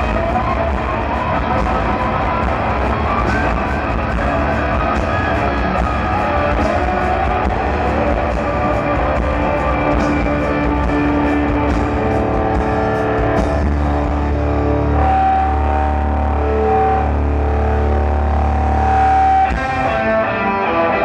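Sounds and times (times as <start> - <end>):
drums: 0.0 - 20.7
distorted electric guitar: 0.0 - 21.0.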